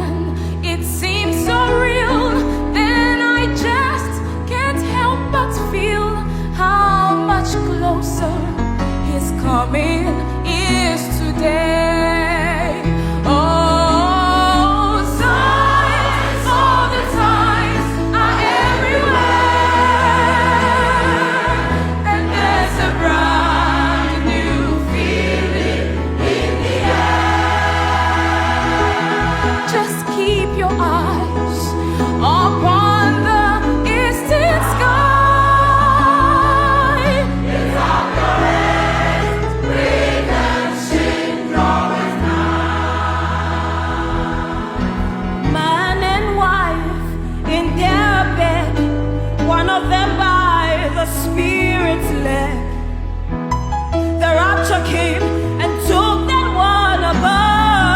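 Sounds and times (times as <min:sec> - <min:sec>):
voices singing gospel: 0:14.4 - 0:31.4, 0:33.9 - 0:45.4
low bass notes: 0:43.9 - 0:53.9.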